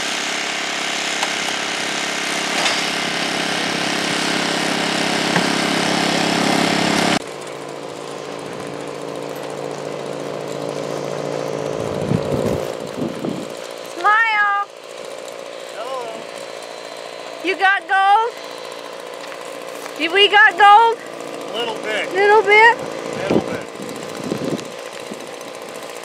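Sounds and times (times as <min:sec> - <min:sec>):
small engine machinery humming: 0:00.0 - 0:26.0.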